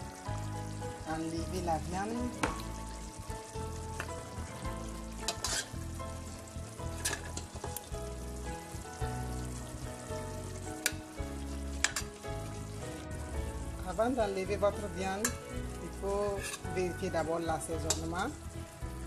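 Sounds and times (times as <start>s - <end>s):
meat sizzling in a pot: 0.0s - 19.0s
soft background music: 0.0s - 19.0s
utensil clicking against pot: 17.9s - 18.1s.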